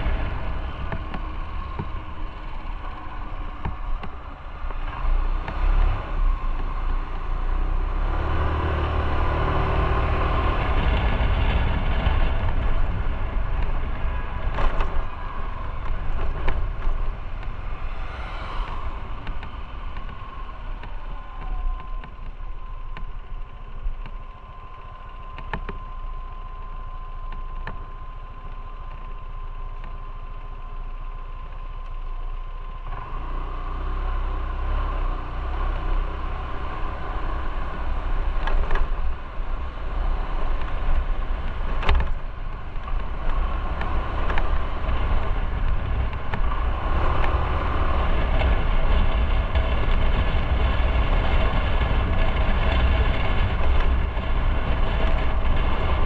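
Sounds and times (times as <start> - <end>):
motorcycle engine rumble: 0.0 - 56.0
wind and road noise: 0.0 - 56.0.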